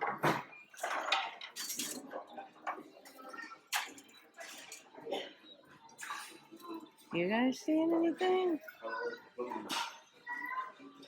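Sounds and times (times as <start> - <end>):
items clattering and clinking: 0.0 - 5.3.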